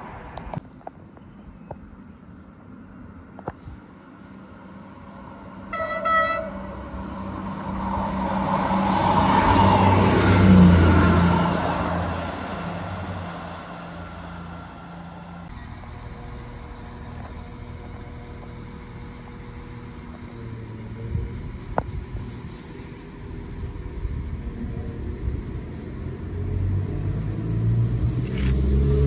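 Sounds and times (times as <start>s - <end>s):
diesel train idling hum: 3.2s - 28.5s
train passing at speed: 4.6s - 17.8s
train horn blast: 5.7s - 6.8s.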